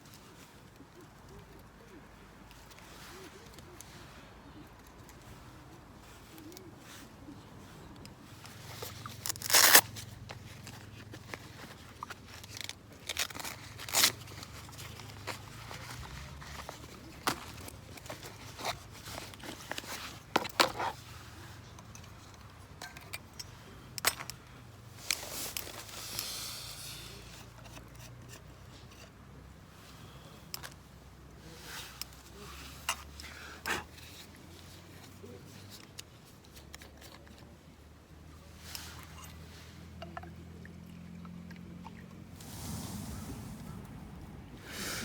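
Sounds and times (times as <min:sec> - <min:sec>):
rustling: 0:00.0 - 0:29.1, 0:42.3 - 0:45.0
camping gear knocks and clicks: 0:08.0 - 0:21.0, 0:21.7 - 0:26.0.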